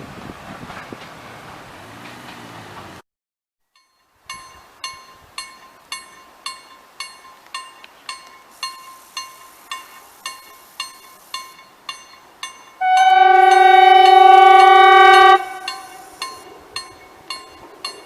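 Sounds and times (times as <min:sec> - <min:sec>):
railroad crossing bell ringing: 0:03.7 - 0:18.0.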